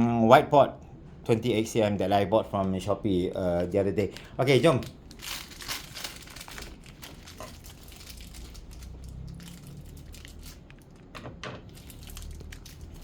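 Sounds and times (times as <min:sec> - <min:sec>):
low steady hum: 0:00.0 - 0:13.0
packaging crinkling: 0:04.6 - 0:13.0.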